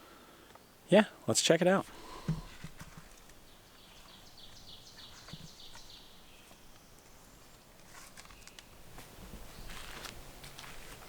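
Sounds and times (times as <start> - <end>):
small bird singing: 2.0 - 7.4.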